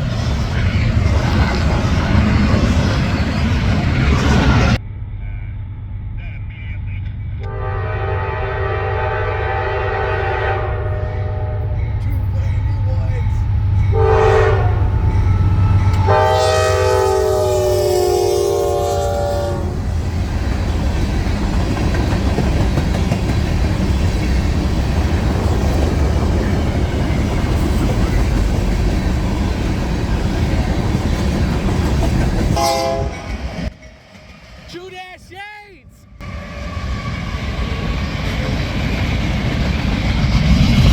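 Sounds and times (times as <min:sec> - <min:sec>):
locomotive air horn: 0:07.4 - 0:11.8, 0:13.9 - 0:19.8, 0:32.5 - 0:33.5
train wheels clattering: 0:19.8 - 0:34.6.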